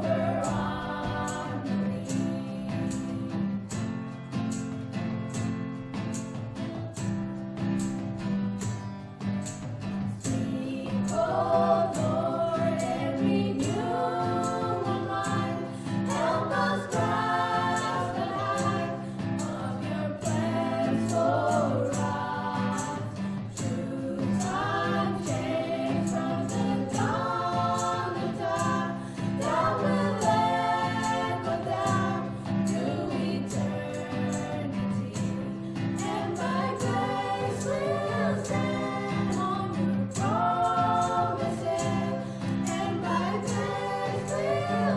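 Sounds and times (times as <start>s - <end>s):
group of voices singing: 0.0s - 3.9s, 10.1s - 44.9s.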